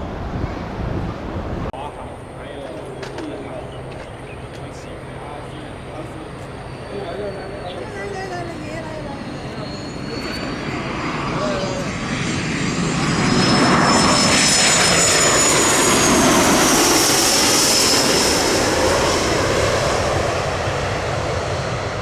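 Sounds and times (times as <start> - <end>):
jet passing with high whine: 0.0 - 22.0.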